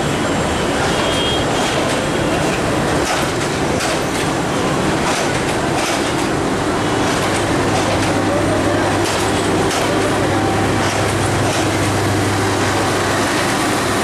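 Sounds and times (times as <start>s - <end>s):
train rumble: 0.0s - 14.0s
train wheels clacking over joints: 1.4s - 12.2s.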